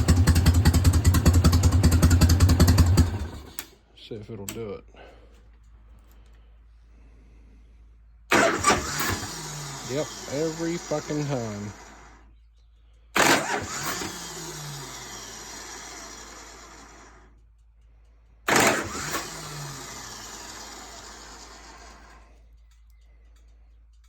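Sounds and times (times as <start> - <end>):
starter motor whirring: 0.0 - 3.8, 8.3 - 12.3, 13.2 - 17.4, 18.4 - 22.5
starter solenoid clack: 0.0 - 3.8, 8.3 - 12.1, 13.2 - 17.8, 18.5 - 24.0.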